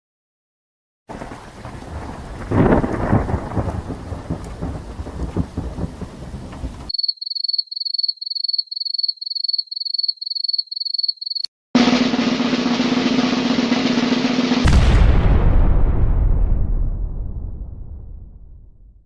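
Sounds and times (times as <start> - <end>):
steady rain: 1.1 - 6.9
thunder rumble: 1.1 - 6.9, 11.8 - 19.0.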